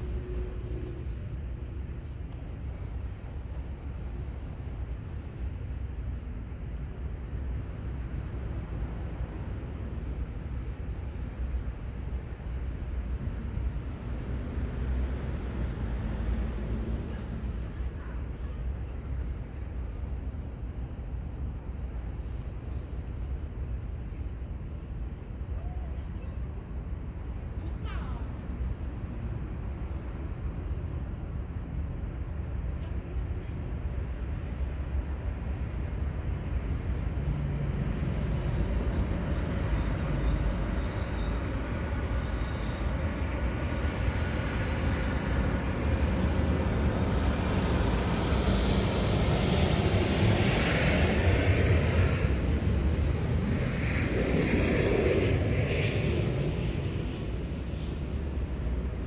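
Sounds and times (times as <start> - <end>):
aircraft rumble: 15.1 - 59.0.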